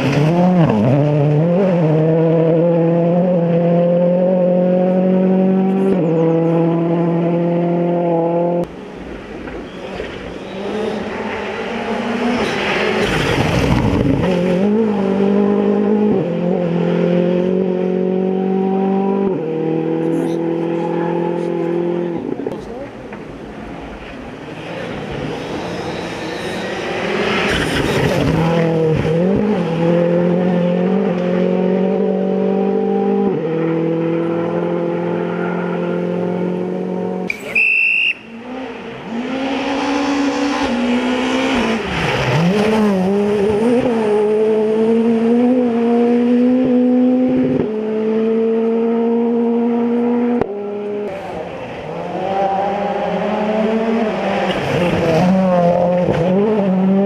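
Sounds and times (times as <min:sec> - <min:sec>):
rally car engines revving: 0:00.0 - 0:57.0
tyre squeal: 0:25.3 - 0:28.2, 0:37.3 - 0:38.3.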